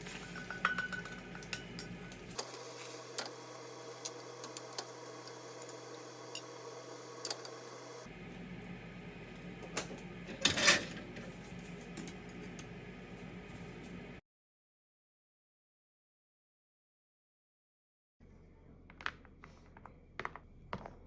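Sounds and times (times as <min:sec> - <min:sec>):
dishes clattering: 0:00.0 - 0:02.3, 0:09.7 - 0:11.3
dishes and utensils clinking: 0:00.0 - 0:02.4, 0:09.7 - 0:11.3
steady low hum: 0:00.0 - 0:14.2.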